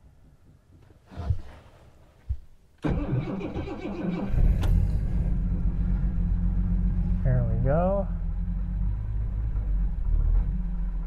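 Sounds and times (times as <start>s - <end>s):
car engine running: 4.4s - 11.0s.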